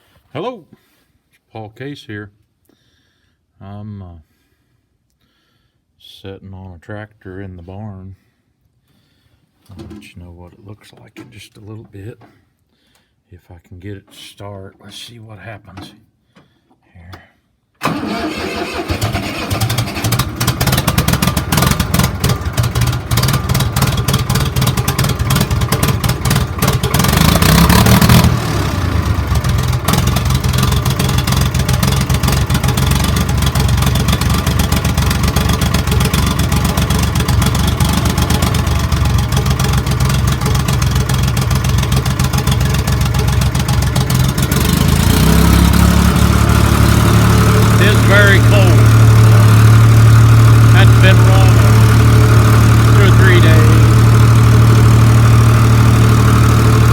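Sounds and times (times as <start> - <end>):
diesel tractor engine starting and idling: 17.8 - 56.9.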